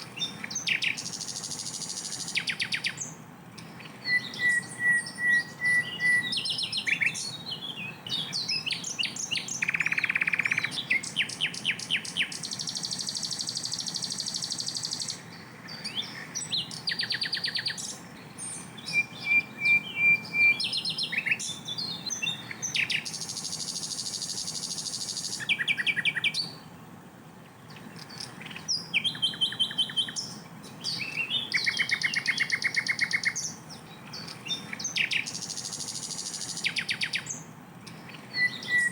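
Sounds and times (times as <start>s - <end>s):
flycatcher singing: 0.0s - 26.7s, 27.7s - 38.9s.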